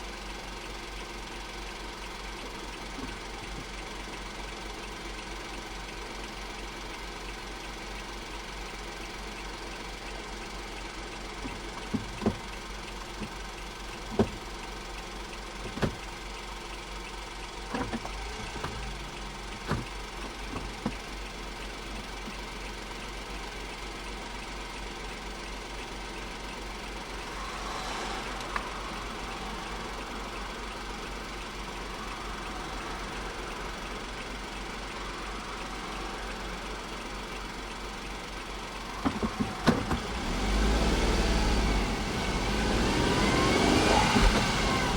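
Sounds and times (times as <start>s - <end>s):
car engine idling: 0.0s - 44.9s
sharp clicks and knocks: 11.4s - 14.5s, 15.5s - 16.2s, 17.6s - 21.2s, 39.0s - 40.1s.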